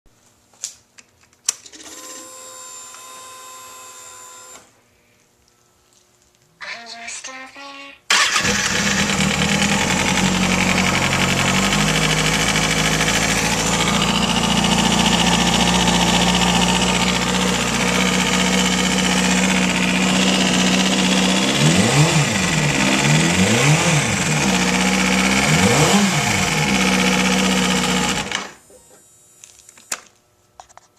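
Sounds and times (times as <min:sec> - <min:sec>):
motorcycle engine revving: 0:08.1 - 0:28.6
motorcycle engine idling: 0:08.4 - 0:28.3.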